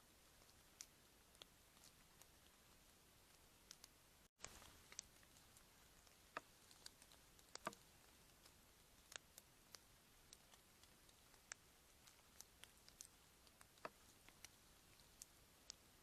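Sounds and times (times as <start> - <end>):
faint irregular clicks: 0.0 - 16.0.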